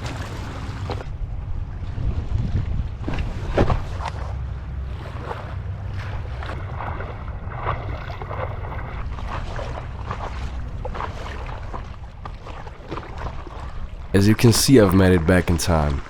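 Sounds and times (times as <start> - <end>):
waves splashing around boat: 0.0 - 16.0
wind buffeting microphone: 1.1 - 4.1.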